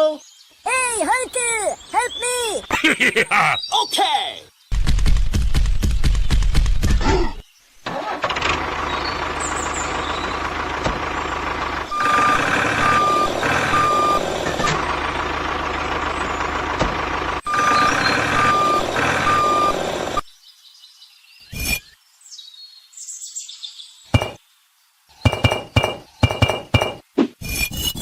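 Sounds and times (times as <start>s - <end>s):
truck engine running: 7.9s - 20.2s
reversing alarm beeps: 11.9s - 14.8s, 17.5s - 19.8s, 24.2s - 24.4s.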